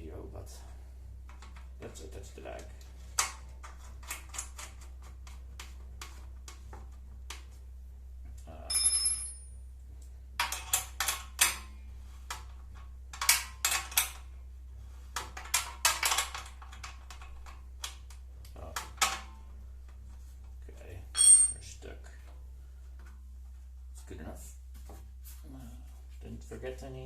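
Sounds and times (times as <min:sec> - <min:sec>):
metal hardware clinking: 0:08.7 - 0:09.5, 0:21.1 - 0:21.6
ringing metallic rattle: 0:08.7 - 0:09.6, 0:21.2 - 0:21.6.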